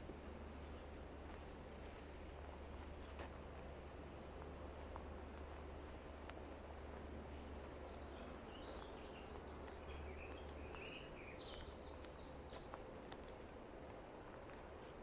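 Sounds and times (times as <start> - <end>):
songbird chirping: 7.4 - 12.9.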